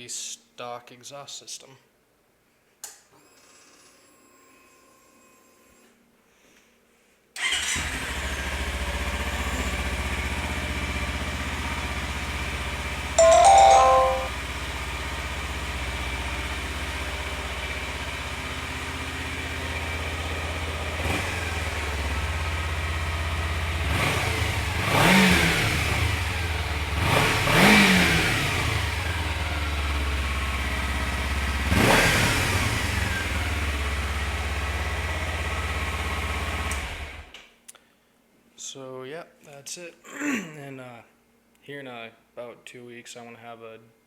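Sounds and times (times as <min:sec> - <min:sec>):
motorcycle engine idling and revving: 0:07.6 - 0:13.0, 0:14.7 - 0:37.3.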